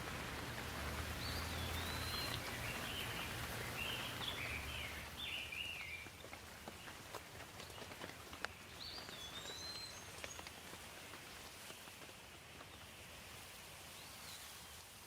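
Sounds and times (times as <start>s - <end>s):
faint steady hiss: 0.0s - 15.0s
high bird calls: 1.1s - 6.1s.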